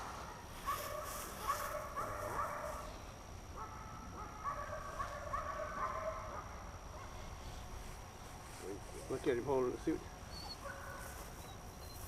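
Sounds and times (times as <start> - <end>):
dog whining: 10.3 - 10.7, 11.4 - 12.0.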